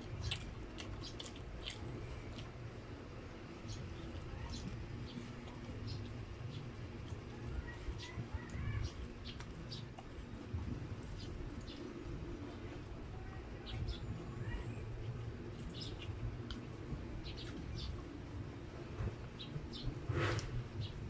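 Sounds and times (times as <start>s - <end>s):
wet chewing and lip smacks: 0.0s - 12.0s, 15.0s - 18.2s
steady low hum: 0.0s - 21.0s.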